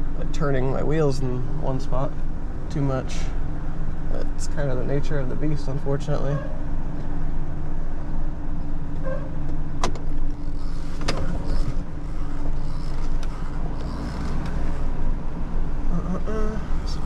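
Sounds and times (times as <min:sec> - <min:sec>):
truck engine running: 0:00.0 - 0:17.0
tires on gravel: 0:09.0 - 0:15.3.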